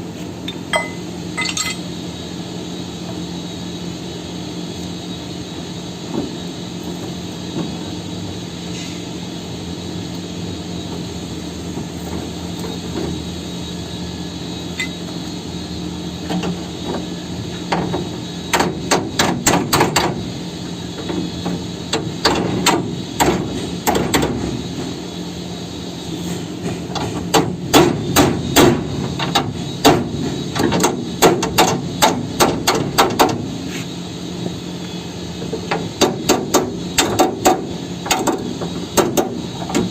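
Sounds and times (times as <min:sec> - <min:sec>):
steady hum: 0:00.0 - 0:16.3
hammer striking steel: 0:00.5 - 0:01.9.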